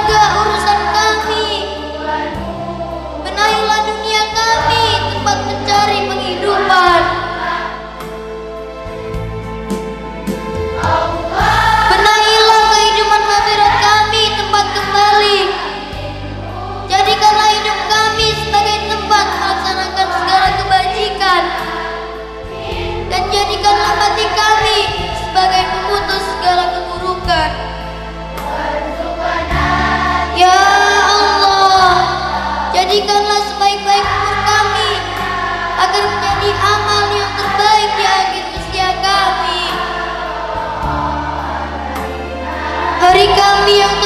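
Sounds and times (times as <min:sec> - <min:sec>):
group of voices singing: 0:00.0 - 0:09.2, 0:10.4 - 0:27.4, 0:28.1 - 0:44.0
accompanying music: 0:00.0 - 0:44.0.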